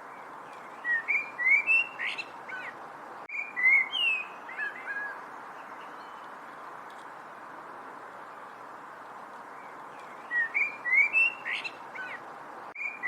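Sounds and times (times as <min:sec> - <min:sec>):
songbird chirping: 0:00.0 - 0:13.0
steady background hiss: 0:00.0 - 0:13.0.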